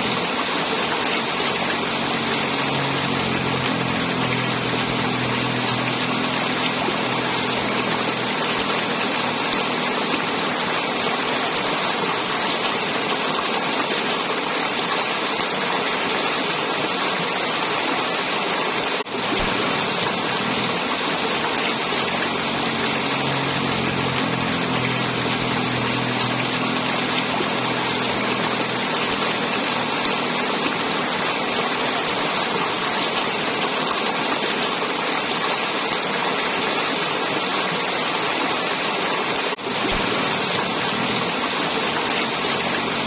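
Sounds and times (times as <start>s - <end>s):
river water flowing and gurgling: 0.0s - 43.0s
low steady hum: 19.1s - 32.4s, 39.6s - 43.0s.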